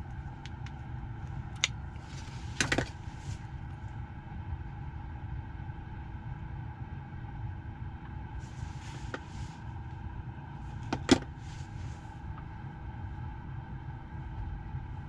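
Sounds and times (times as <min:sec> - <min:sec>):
car cabin hum: 0:00.0 - 0:03.8, 0:08.4 - 0:09.7, 0:10.5 - 0:15.0.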